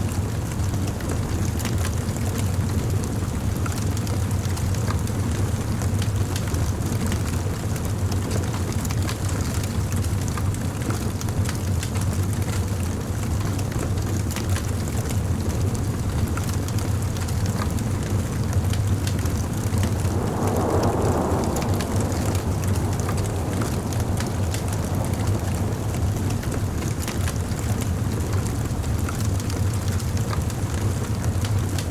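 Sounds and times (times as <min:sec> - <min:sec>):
bonfire flame rumble: 0:00.0 - 0:31.9
fire crackling and popping: 0:00.3 - 0:31.9
rush of flame: 0:16.0 - 0:31.9.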